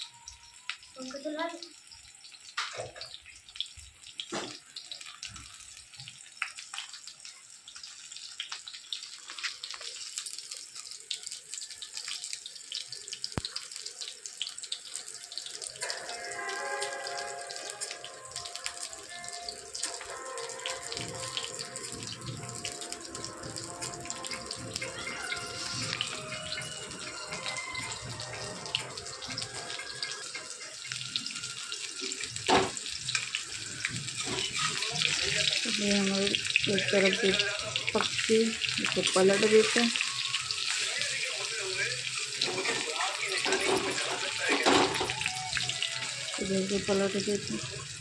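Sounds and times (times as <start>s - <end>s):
music: 0.0s - 1.6s, 15.0s - 48.0s
vegetable slices sizzling in oil: 0.0s - 48.0s.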